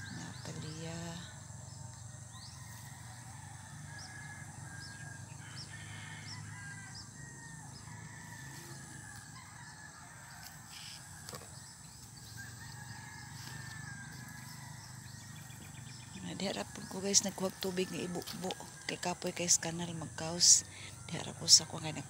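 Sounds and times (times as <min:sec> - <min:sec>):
birds chirping and calling: 0:00.0 - 0:03.3, 0:09.1 - 0:22.0.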